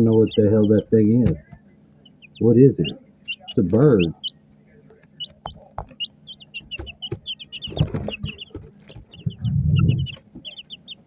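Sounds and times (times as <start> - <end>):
chicks peeping: 0.0 - 11.0
brief low rumbles: 9.2 - 10.2.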